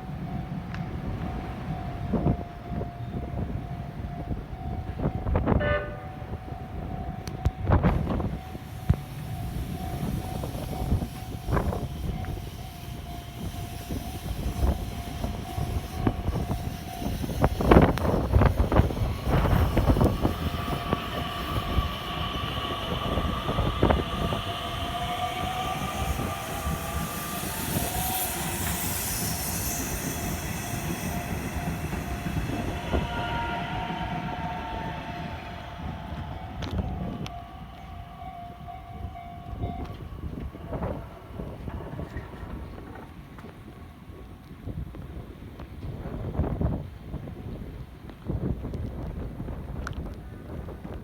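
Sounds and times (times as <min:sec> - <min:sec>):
train motor whine: 0:00.2 - 0:45.7.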